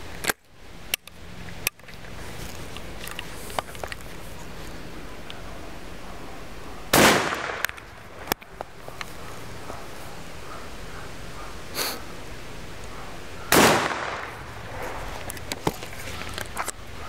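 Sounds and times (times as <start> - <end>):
shotgun shot with echo: 6.9 - 7.7, 13.5 - 14.4.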